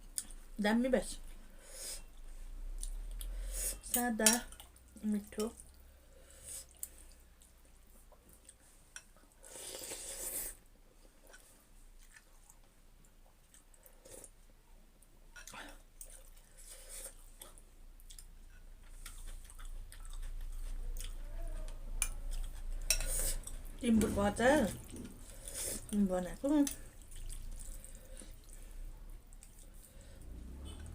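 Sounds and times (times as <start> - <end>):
person chewing: 6.4 - 14.4, 15.4 - 23.8, 24.8 - 26.0, 26.6 - 30.9.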